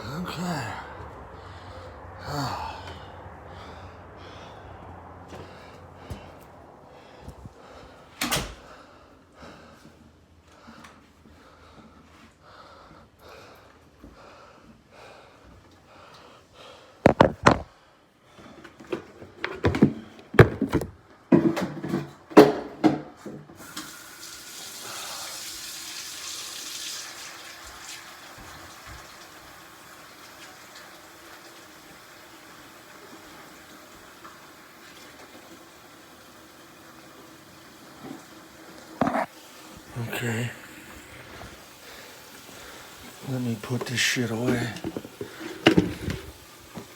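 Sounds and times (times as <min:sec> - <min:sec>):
water pouring into a bowl: 0:23.7 - 0:37.1
container knocking and clattering: 0:43.6 - 0:46.9.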